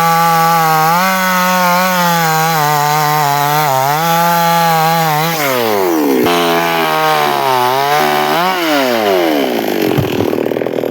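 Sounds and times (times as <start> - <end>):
chainsaw engine revving: 0.0 - 10.9.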